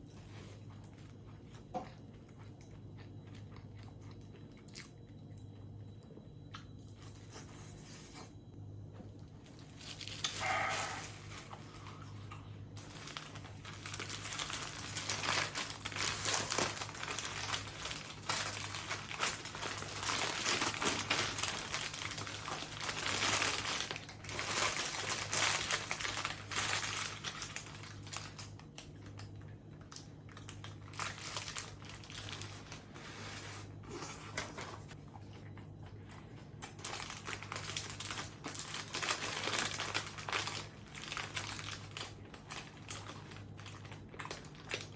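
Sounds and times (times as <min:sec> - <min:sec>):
chewing: 0:00.0 - 0:07.6, 0:33.8 - 0:37.0
faint low hum: 0:00.0 - 0:44.9
paper food wrapping crinkling: 0:09.4 - 0:35.0, 0:36.2 - 0:44.9.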